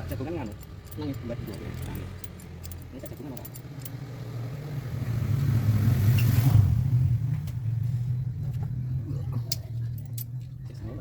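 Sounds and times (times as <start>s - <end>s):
car engine humming: 0.0s - 5.0s.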